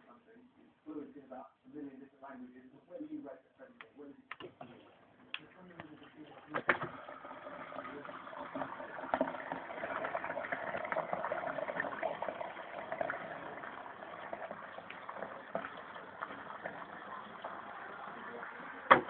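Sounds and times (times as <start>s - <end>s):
water rushing into washing machine: 5.8s - 19.0s.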